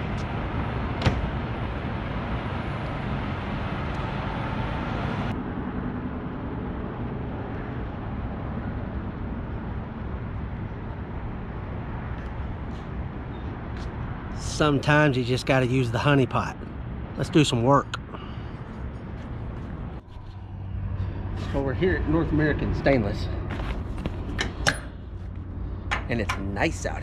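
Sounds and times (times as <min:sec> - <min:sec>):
truck engine and road rumble: 0:00.0 - 0:27.0.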